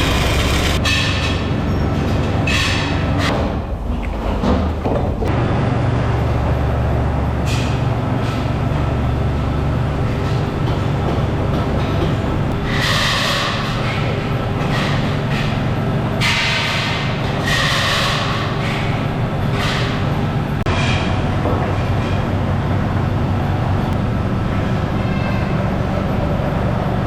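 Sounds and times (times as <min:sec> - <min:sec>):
hissing scraping metal work: 0:00.0 - 0:00.8
factory machinery humming: 0:00.0 - 0:01.7, 0:05.2 - 0:27.0.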